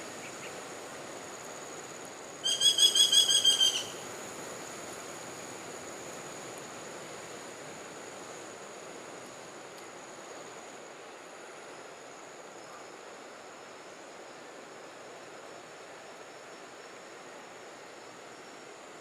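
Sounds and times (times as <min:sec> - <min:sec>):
woodpecker ringing call: 0:02.4 - 0:04.0.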